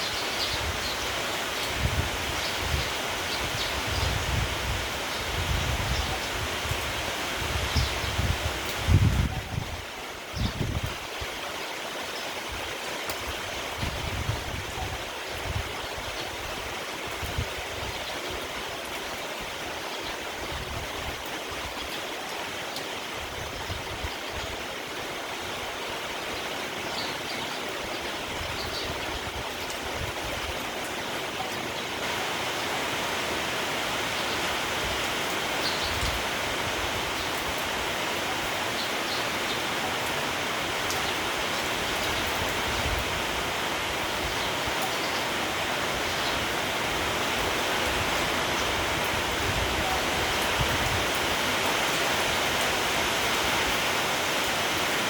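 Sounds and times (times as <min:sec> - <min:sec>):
wind gusting over microphone: 0:00.0 - 0:11.4, 0:13.5 - 0:18.1, 0:45.8 - 0:55.0
steady rain: 0:00.0 - 0:55.0.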